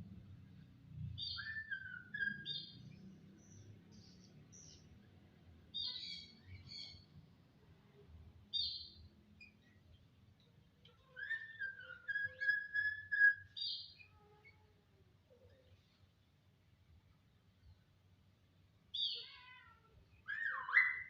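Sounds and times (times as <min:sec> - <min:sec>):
starling singing: 0:11.2 - 0:13.9, 0:20.3 - 0:21.0.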